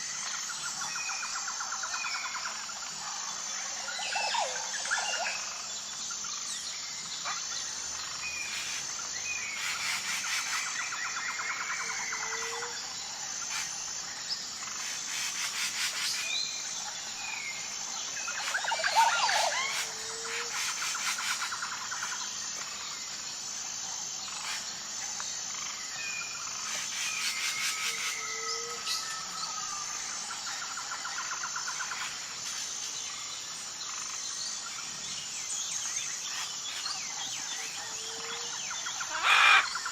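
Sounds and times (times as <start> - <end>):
wild birds calling and singing: 0.0 - 39.9
high-pitched insect chirring: 8.0 - 16.9, 17.6 - 23.1.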